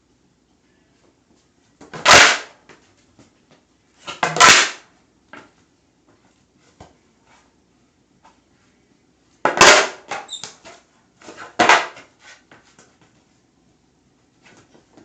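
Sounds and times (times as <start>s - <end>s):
fingerboard deck hitting surface: 1.8s - 2.6s, 4.1s - 4.8s, 9.4s - 10.3s, 11.4s - 12.1s.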